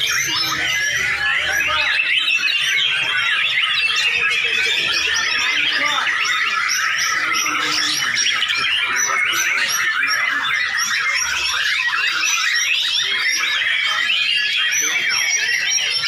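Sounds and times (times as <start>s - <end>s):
birds singing in chorus: 0.0s - 16.0s.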